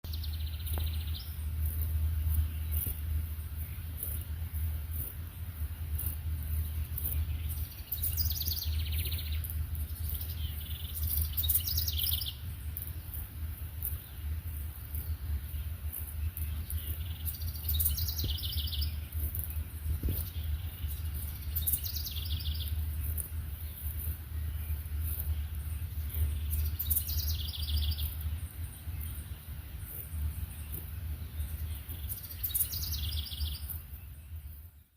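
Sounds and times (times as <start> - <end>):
low steady rumble: 0.0 - 34.9
songbirds trilling: 0.0 - 34.9
songbird singing descending notes: 16.4 - 19.0, 30.5 - 34.4.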